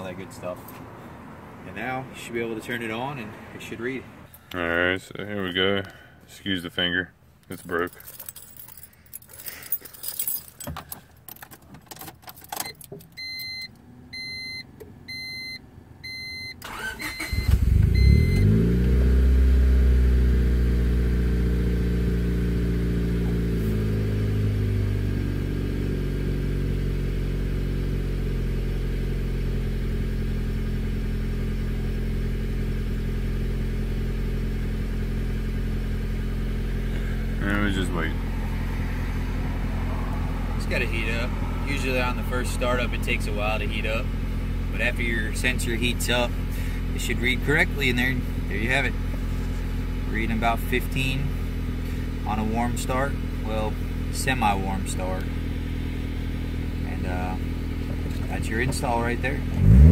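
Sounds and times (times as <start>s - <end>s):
car engine cranking and idling: 0.0s - 59.9s
keys rattling in ignition: 7.4s - 13.7s.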